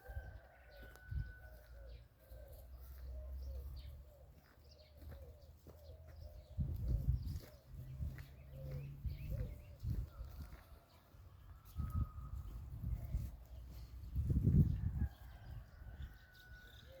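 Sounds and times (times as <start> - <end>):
low cooing bird notes: 0.0 - 10.3.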